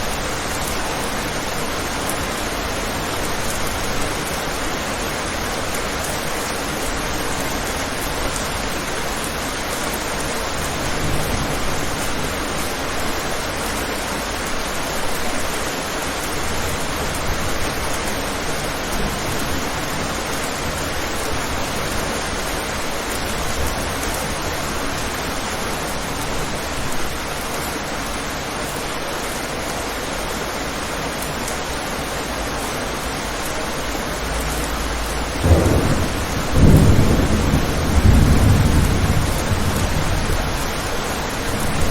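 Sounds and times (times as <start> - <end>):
heavy rain: 0.0 - 41.9.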